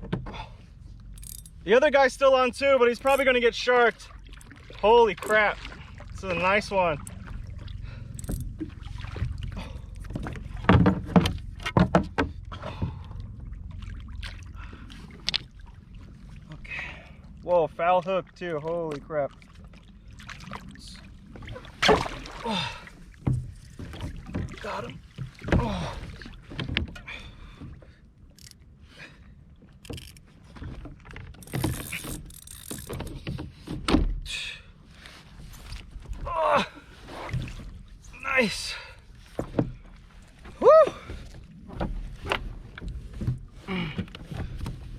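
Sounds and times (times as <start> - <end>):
knocks and rattles on kayak: 0.0 - 0.6, 4.4 - 13.4, 23.0 - 28.0, 29.8 - 34.3, 39.2 - 44.9
wind and water rumble: 0.0 - 44.9.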